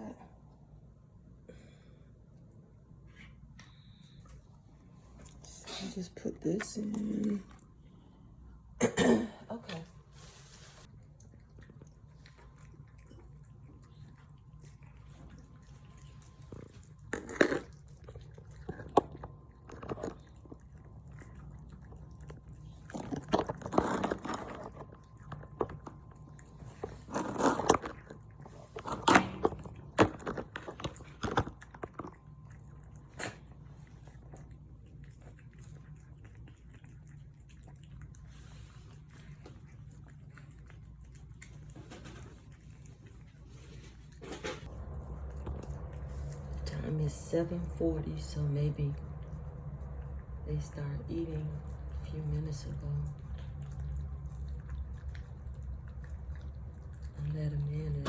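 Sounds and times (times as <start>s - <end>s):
cats chewing and crunching food: 0.0s - 8.9s, 9.5s - 58.0s
low hum: 38.0s - 58.0s.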